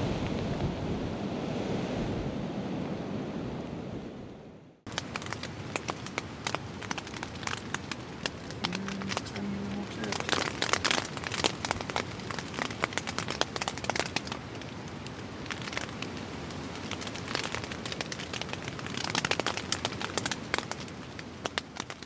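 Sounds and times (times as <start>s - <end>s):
rain pattering on tent: 4.9s - 22.0s
steady hiss of rain and wind: 4.9s - 22.0s
tent fabric crinkling and rattling: 4.9s - 22.0s.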